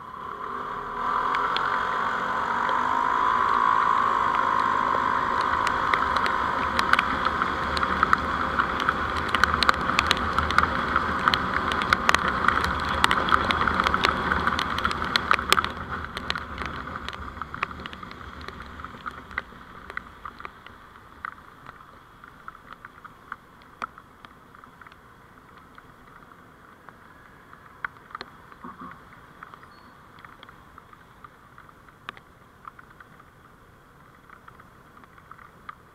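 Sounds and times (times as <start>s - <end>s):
road and engine noise: 0.0s - 35.9s.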